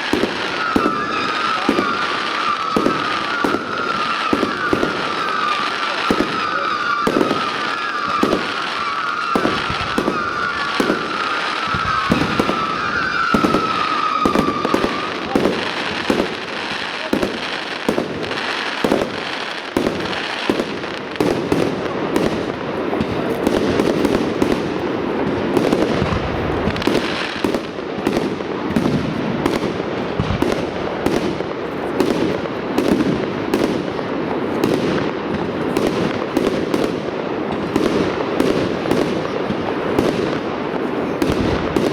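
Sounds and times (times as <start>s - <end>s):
fireworks bursting: 0.0s - 41.9s
wavering falling whistle: 6.5s - 15.1s.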